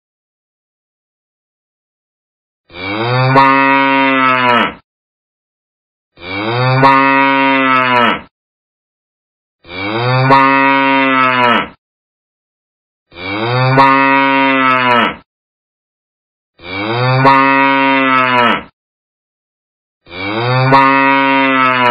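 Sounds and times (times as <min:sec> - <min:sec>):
cow mooing: 0:02.7 - 0:04.8, 0:06.2 - 0:08.3, 0:09.6 - 0:11.8, 0:13.1 - 0:15.2, 0:16.6 - 0:18.7, 0:20.1 - 0:21.9.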